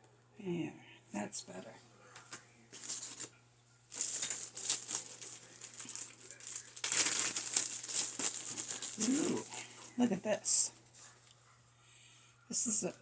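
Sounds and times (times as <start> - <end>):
packing paper rustling: 2.7 - 11.3.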